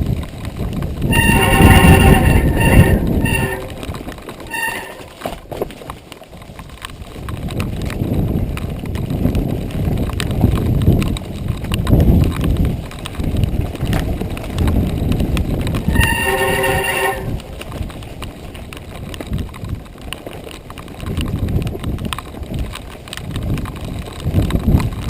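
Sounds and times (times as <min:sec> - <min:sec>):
mountain bike rattling on dirt trail: 0:00.0 - 0:25.0
wind rumble on microphone: 0:00.0 - 0:25.0
short high squeal: 0:01.1 - 0:03.9, 0:04.5 - 0:05.1, 0:15.9 - 0:17.4.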